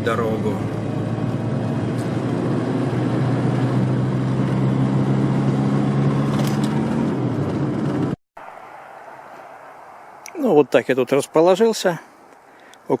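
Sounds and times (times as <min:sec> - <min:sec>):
car engine hum: 0:00.0 - 0:10.3
tyre and road noise: 0:00.0 - 0:13.0.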